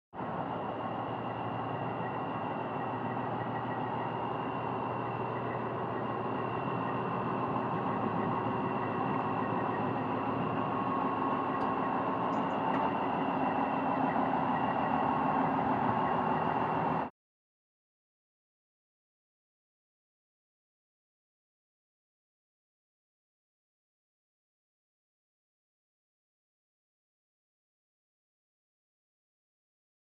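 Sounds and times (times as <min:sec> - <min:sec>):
diesel truck engine idling: 0:00.2 - 0:17.1.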